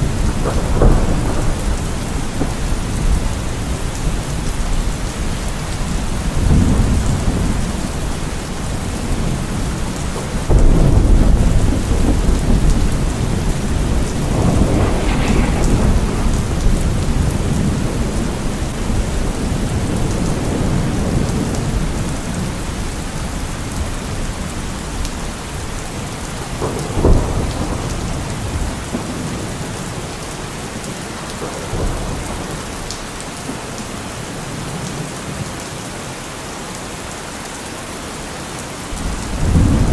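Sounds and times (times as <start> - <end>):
sharp thunderclap: 0.0 - 8.1, 8.7 - 22.7, 26.4 - 30.2, 39.0 - 39.9
rolling thunder: 0.0 - 35.1, 39.0 - 39.9
steady rain: 0.0 - 39.9.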